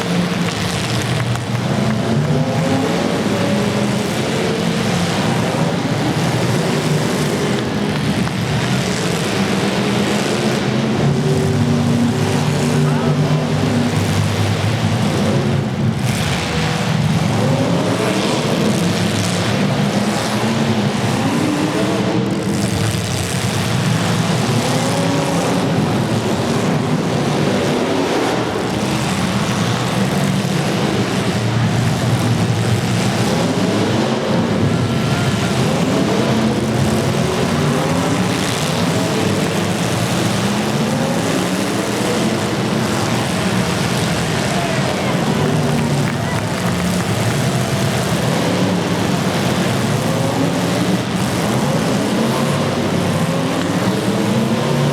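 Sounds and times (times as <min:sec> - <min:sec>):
car engines revving: 0:00.0 - 0:54.9.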